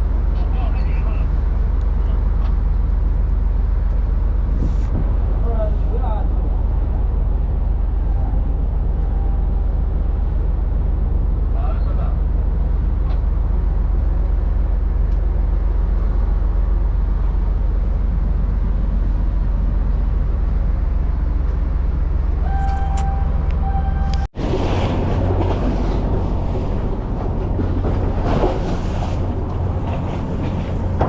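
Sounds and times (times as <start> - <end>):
strong wind buffeting microphone: 4.4 - 5.5
short high tone: 22.4 - 24.3.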